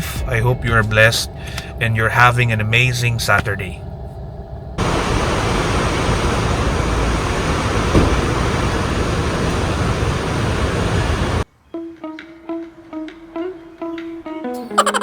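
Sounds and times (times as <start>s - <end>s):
steady rushing din with low rumble: 0.0s - 11.4s.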